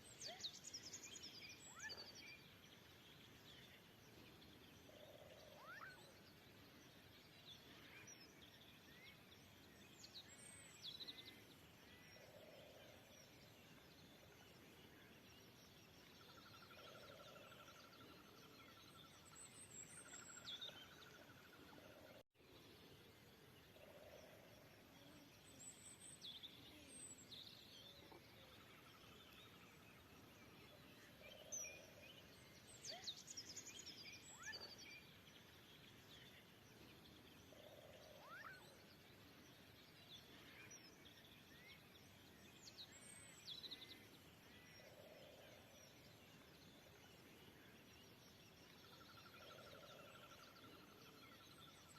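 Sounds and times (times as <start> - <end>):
low steady hiss: 0.0 - 51.9.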